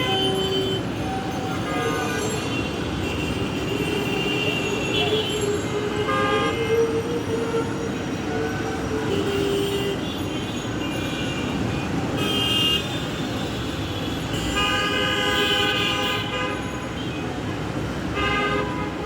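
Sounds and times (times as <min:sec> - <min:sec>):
vehicle horns honking: 0:00.0 - 0:08.1, 0:09.0 - 0:17.3, 0:18.1 - 0:19.0
traffic rumble: 0:00.0 - 0:19.0.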